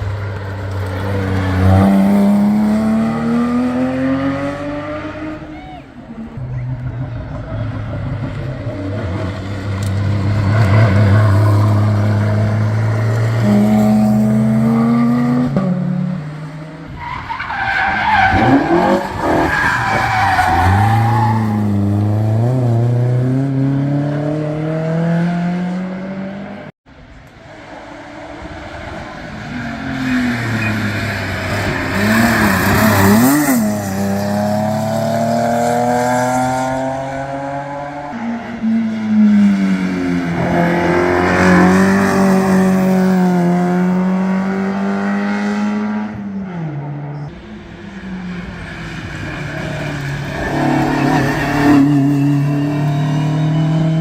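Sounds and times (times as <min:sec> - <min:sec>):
racing car engines accelerating: 0:00.0 - 0:54.0
tyre squeal: 0:30.0 - 0:34.0, 0:49.0 - 0:54.0.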